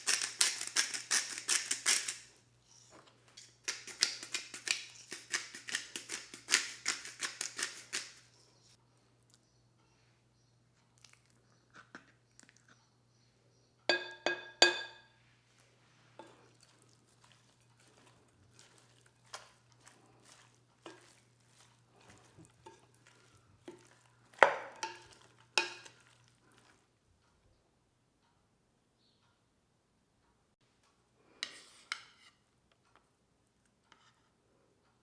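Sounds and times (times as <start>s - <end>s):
utensil clinking on dish: 13.9s - 15.2s, 16.2s - 26.8s.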